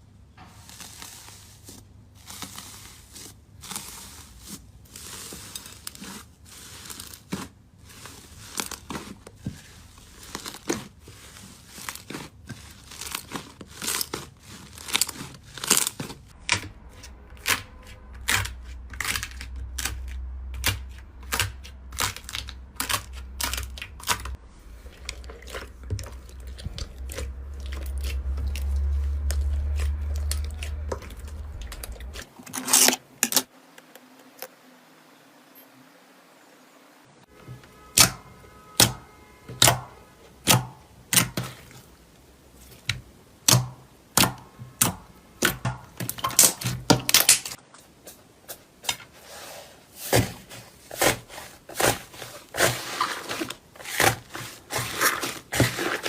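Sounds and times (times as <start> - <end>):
low rumble: 16.3 - 32.3.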